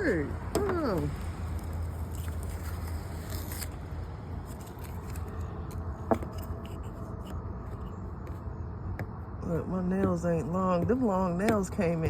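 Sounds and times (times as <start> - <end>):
crackling and rustling paper: 1.2 - 5.8
tape peeling off: 1.4 - 5.8.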